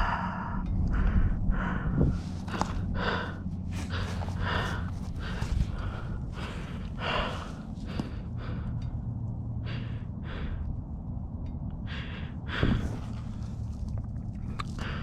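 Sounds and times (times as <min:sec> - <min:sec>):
person gasping and breathing hard: 0:00.0 - 0:08.9, 0:09.6 - 0:10.7, 0:11.9 - 0:13.7, 0:14.5 - 0:15.0
low steady rumble: 0:00.0 - 0:15.0.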